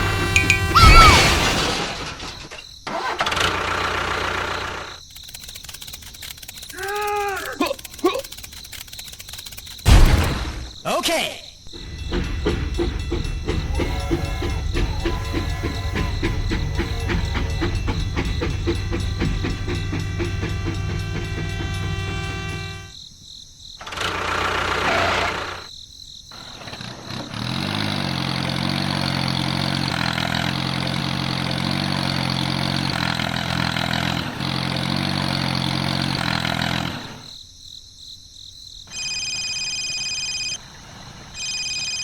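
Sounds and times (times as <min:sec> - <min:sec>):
small engine running: 0:00.0 - 0:00.8, 0:02.9 - 0:09.9, 0:11.7 - 0:22.9, 0:23.8 - 0:25.7, 0:26.4 - 0:37.4
high shrill chirping: 0:00.4 - 0:01.3.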